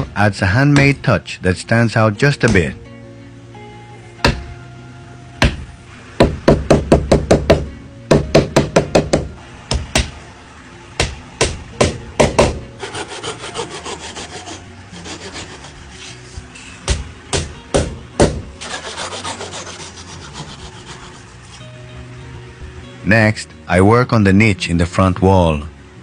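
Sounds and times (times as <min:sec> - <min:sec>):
hammer knocking on wood: 0:04.2 - 0:04.5, 0:05.4 - 0:10.2, 0:11.0 - 0:12.6, 0:16.9 - 0:18.5
rubbing strokes on wood: 0:11.8 - 0:17.0, 0:18.2 - 0:21.8.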